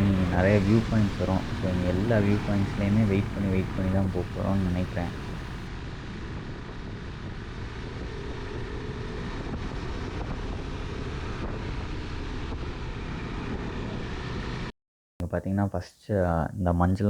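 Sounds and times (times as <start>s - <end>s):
motorcycle running: 0.0s - 5.7s
wind rushing over microphone: 0.0s - 5.7s.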